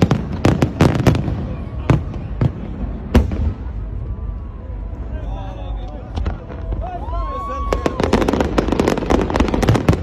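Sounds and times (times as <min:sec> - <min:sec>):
fireworks bangs: 0:00.0 - 0:04.1, 0:06.1 - 0:10.0.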